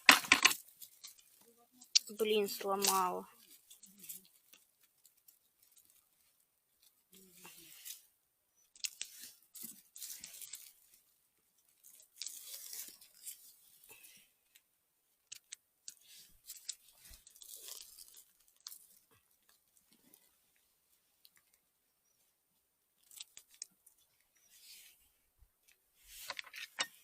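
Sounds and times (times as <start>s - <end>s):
crunching of dry leaves: 7.1s - 8.0s, 8.6s - 11.1s, 11.7s - 14.3s, 16.0s - 19.1s.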